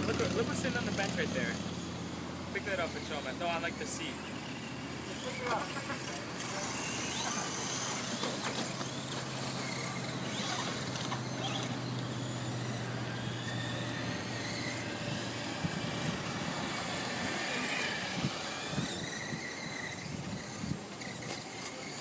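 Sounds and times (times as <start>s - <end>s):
rc car motors whining: 0.0s - 22.0s.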